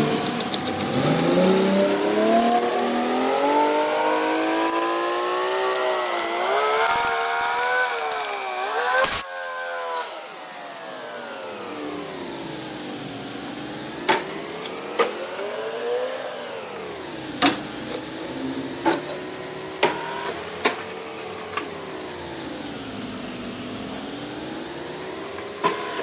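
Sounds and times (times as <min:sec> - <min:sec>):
machine motor humming: 0:01.3 - 0:09.2.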